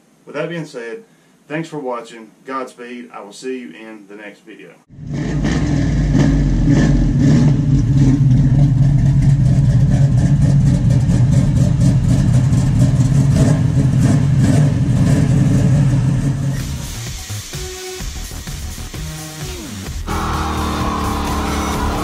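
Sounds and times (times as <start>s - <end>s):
deep exhaust rumble: 4.9s - 16.5s
car engine idling: 7.6s - 16.5s.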